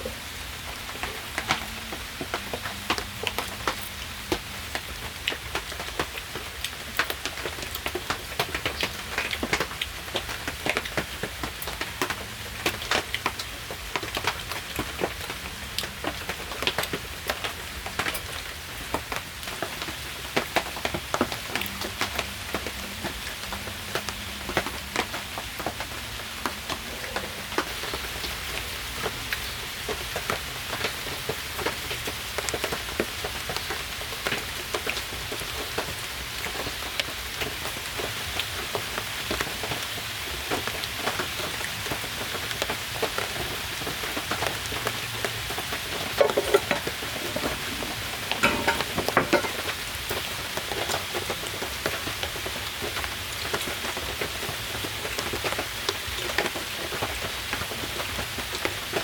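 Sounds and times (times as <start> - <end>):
rain drops ticking: 0.0 - 59.0
knocks and clatters: 46.2 - 49.7.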